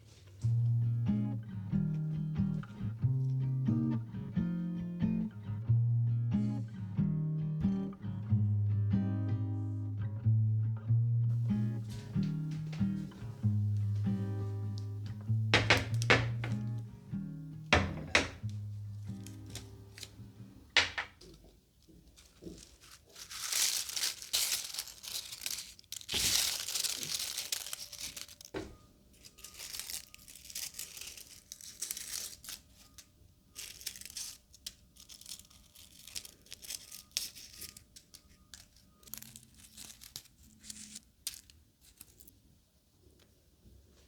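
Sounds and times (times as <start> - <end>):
dried petals crackling rustle: 11.3 - 16.9, 18.5 - 42.5.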